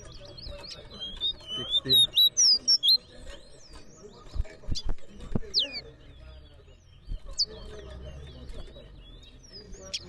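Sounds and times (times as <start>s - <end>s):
songbird chirping and whistling: 0.2s - 3.1s, 5.5s - 5.9s.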